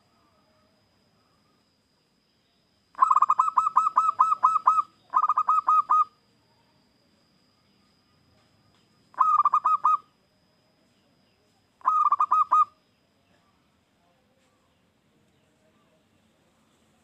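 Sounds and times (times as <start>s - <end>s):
dove cooing: 3.0s - 6.2s, 9.2s - 10.1s, 11.8s - 12.8s.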